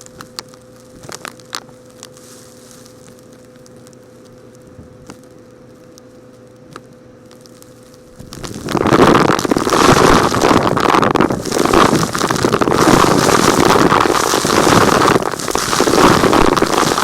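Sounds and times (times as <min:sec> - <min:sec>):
small rocks rattling: 0:08.2 - 0:17.0.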